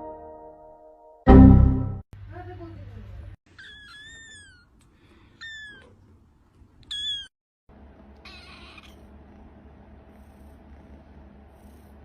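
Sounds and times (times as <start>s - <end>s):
kitten mewing: 8.2s - 9.1s.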